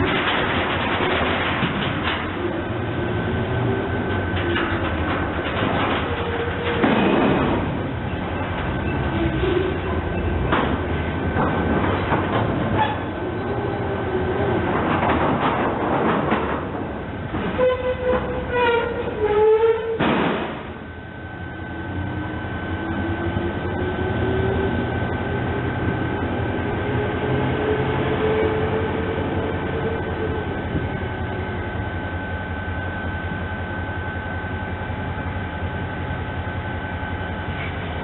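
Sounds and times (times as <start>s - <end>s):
train wheels clicking over rails: 0.0s - 2.8s, 3.4s - 19.2s
train drive whine: 0.0s - 38.0s
train horn tone: 17.5s - 20.0s, 26.9s - 31.5s.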